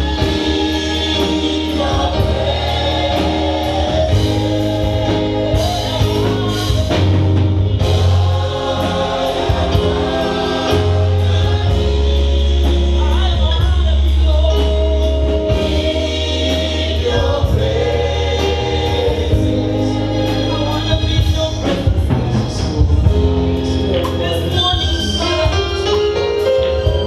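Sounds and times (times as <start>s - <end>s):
steady beat: 0.0s - 14.4s
choir singing gospel: 0.0s - 27.0s
held bass notes: 0.0s - 27.0s.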